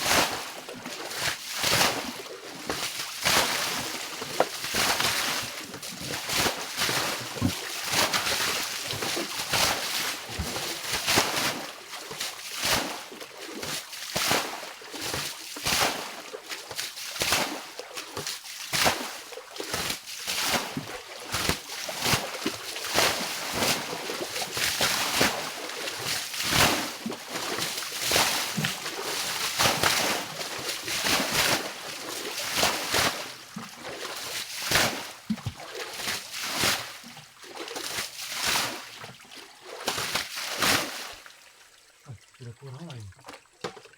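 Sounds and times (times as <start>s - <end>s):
water splashing and sloshing: 0.0s - 43.9s.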